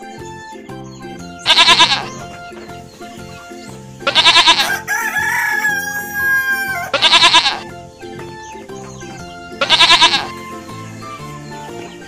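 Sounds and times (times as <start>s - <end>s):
goats bleating: 1.4s - 2.5s, 4.0s - 7.7s, 9.6s - 10.6s
rooster crowing: 4.1s - 7.6s.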